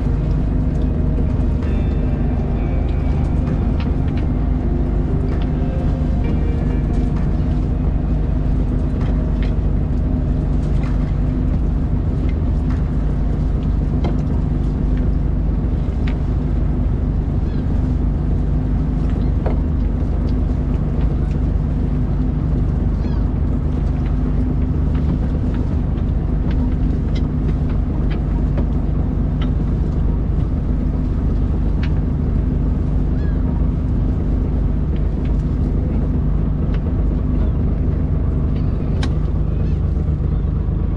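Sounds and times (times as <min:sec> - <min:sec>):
boat engine droning: 0:00.0 - 0:40.9.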